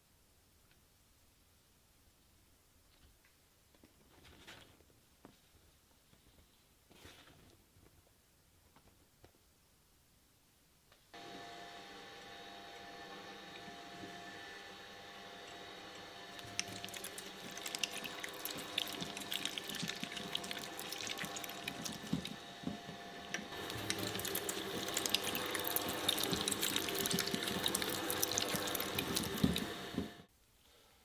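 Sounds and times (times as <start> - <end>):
shredder motor humming: 11.2 - 30.3
dense wet crackling: 16.4 - 22.4, 23.6 - 29.7.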